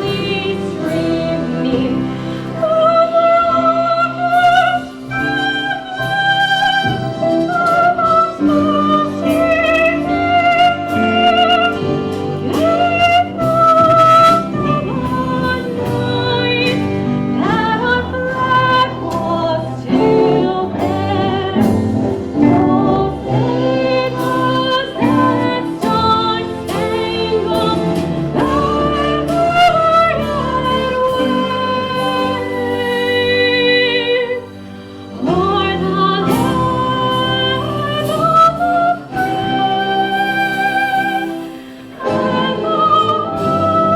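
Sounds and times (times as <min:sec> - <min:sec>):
instrumental accompaniment: 0:00.0 - 0:43.9.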